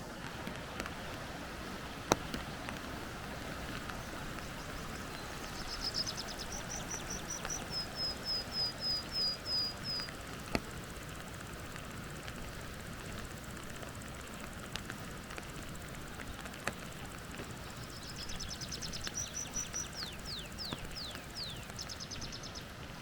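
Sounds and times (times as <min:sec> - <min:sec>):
songbird singing: 0:00.0 - 0:10.7, 0:14.0 - 0:22.9
steady hiss: 0:00.0 - 0:23.0
sharp clicks: 0:11.4 - 0:22.4.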